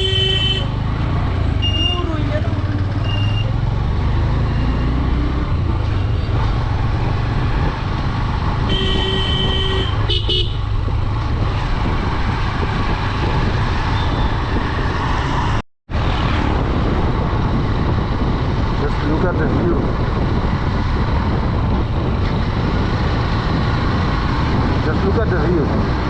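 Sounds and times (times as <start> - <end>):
vehicle horn: 0.0 - 0.8, 8.7 - 10.7
motorcycle engine riding: 0.0 - 26.0
wind rumble: 0.0 - 26.0.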